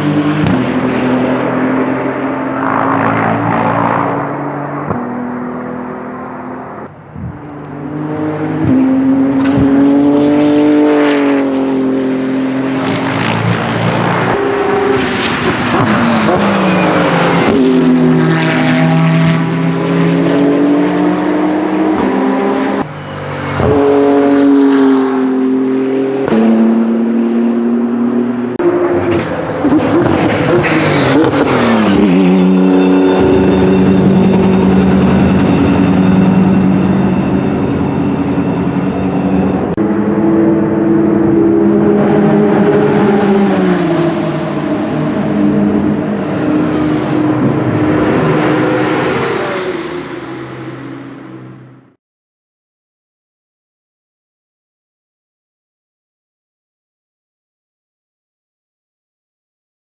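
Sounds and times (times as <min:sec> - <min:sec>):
racing car engine with gearshifts: 0:00.0 - 0:35.1, 0:39.6 - 0:49.7.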